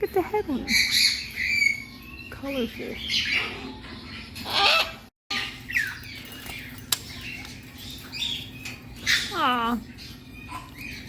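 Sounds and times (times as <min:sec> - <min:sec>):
parrots chirping and calling: 0:00.5 - 0:11.0
parrot harsh squawk: 0:04.4 - 0:05.6.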